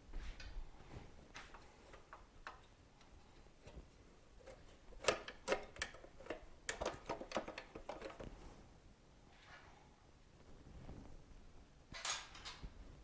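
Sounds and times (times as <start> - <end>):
light clicks and taps of tools: 1.3 - 8.3.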